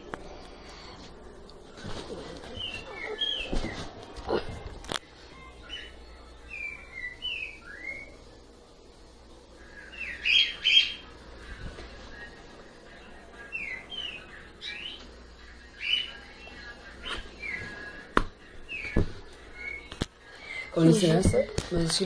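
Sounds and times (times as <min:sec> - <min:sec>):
bird chirping: 0:02.5 - 0:03.8, 0:05.4 - 0:08.2, 0:09.6 - 0:11.1, 0:13.4 - 0:18.0.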